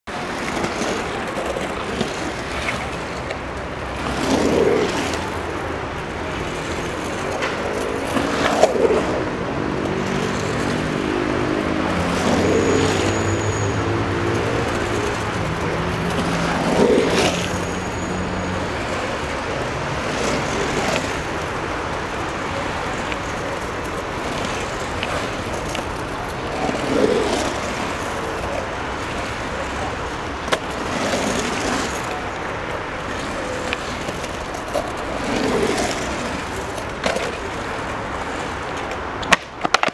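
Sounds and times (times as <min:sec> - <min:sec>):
skateboard clacks: 0:00.1 - 0:39.9
skateboard wheels rolling on concrete: 0:00.1 - 0:39.9.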